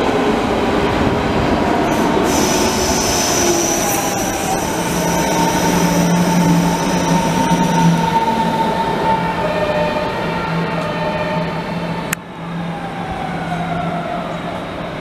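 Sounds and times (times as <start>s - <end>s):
electric train wheel and rail noise: 0.0s - 15.0s
train whining tones: 1.8s - 11.9s.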